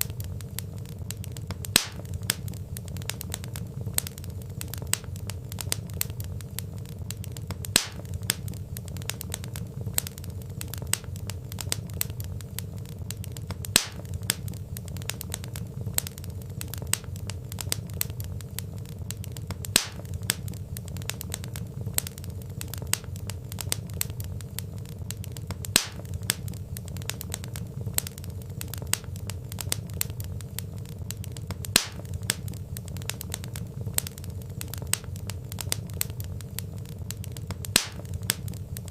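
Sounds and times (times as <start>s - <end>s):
burning logs crackling: 0.0s - 38.9s
low rumble of flames: 0.0s - 38.9s.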